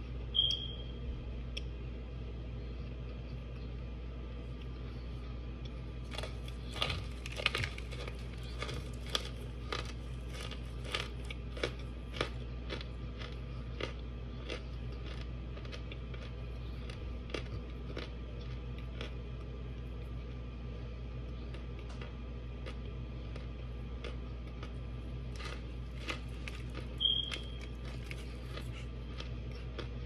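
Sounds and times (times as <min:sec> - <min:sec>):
low hum: 0:00.0 - 0:30.0
person crunching dry chunks: 0:06.0 - 0:19.2, 0:21.4 - 0:30.0.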